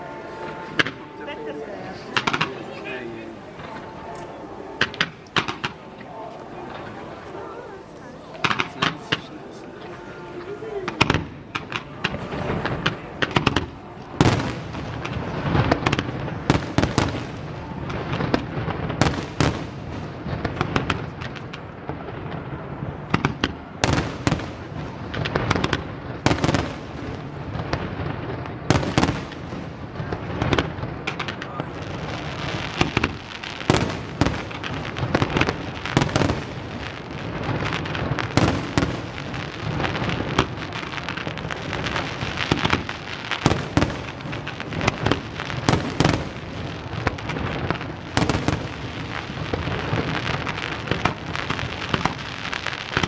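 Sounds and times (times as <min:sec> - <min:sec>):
fireworks bangs: 0:00.0 - 0:53.0
fireworks crackle: 0:00.0 - 0:53.0.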